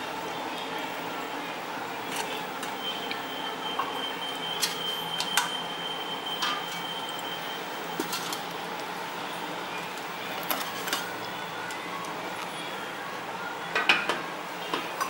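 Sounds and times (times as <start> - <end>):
metal kitchen utensils clinking: 3.8 - 5.6, 6.3 - 6.9, 7.9 - 8.5, 10.3 - 11.3.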